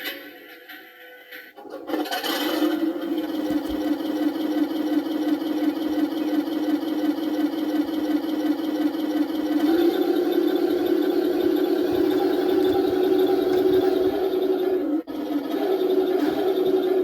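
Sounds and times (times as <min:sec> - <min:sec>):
model truck motor humming: 0:01.6 - 0:17.0.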